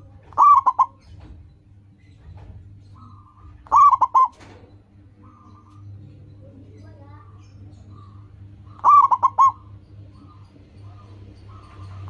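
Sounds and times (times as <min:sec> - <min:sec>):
dove cooing: 0:00.0 - 0:01.4, 0:02.9 - 0:06.4, 0:07.2 - 0:12.0
faint bird call: 0:07.8 - 0:12.0.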